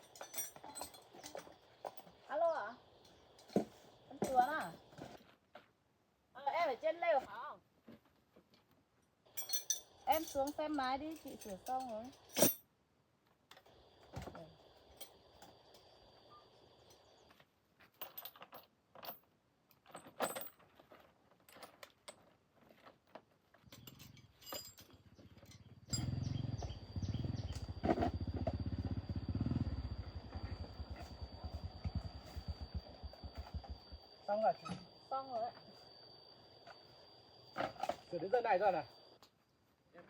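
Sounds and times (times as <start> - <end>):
engine running: 25.8 - 34.0.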